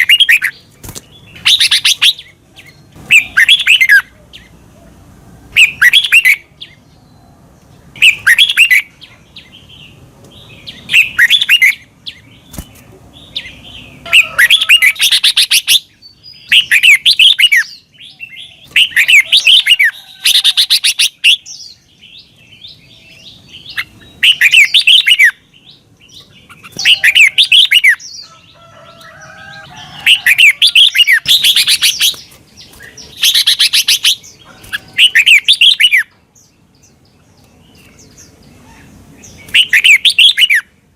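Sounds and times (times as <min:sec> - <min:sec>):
bird whistled song: 0:01.2 - 0:04.1, 0:05.6 - 0:07.3, 0:08.0 - 0:08.9, 0:10.6 - 0:12.6, 0:13.3 - 0:28.3, 0:29.8 - 0:36.2, 0:38.8 - 0:40.8.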